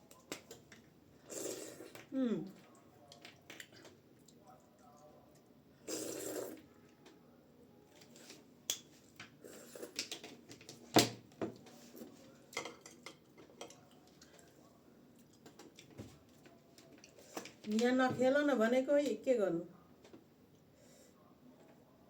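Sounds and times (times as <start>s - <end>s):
slurp: 1.2s - 2.1s, 5.8s - 6.6s.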